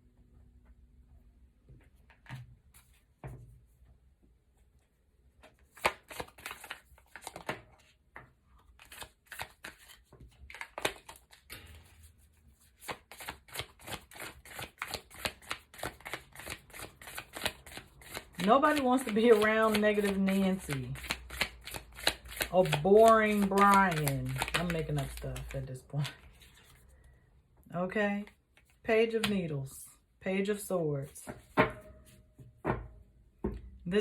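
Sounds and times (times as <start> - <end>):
cards being shuffled: 5.4 - 7.9, 8.7 - 12.0, 12.6 - 26.8.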